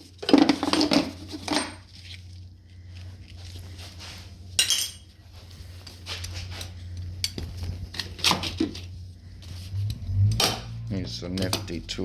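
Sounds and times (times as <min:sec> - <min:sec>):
metal parts clinking and clattering: 0:00.1 - 0:02.1, 0:04.6 - 0:05.1.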